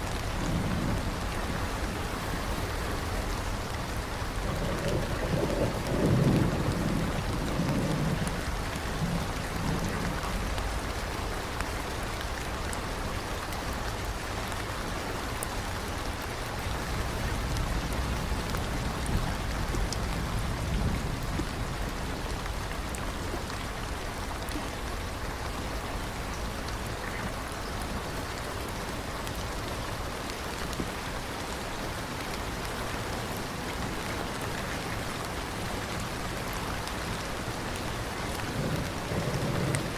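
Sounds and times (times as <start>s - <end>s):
thunder rumbling: 0.0s - 11.4s, 16.6s - 23.5s, 37.0s - 39.9s
steady rain: 0.0s - 39.9s.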